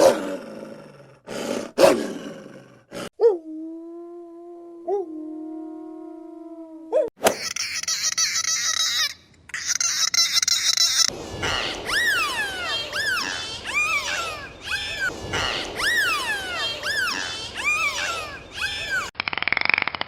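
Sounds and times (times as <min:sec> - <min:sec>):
high-pitched animal calls: 0:06.9 - 0:19.6
hissy crackly noise: 0:11.1 - 0:18.6.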